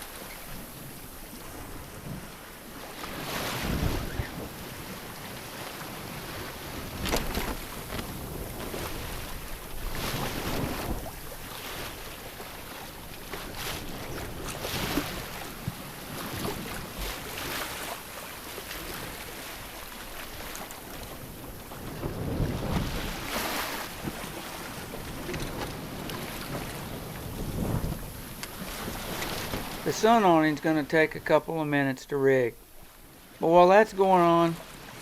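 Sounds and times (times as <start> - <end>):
water splashing against hull: 0.0 - 31.8
wind buffeting microphone: 3.2 - 12.6, 20.4 - 29.9.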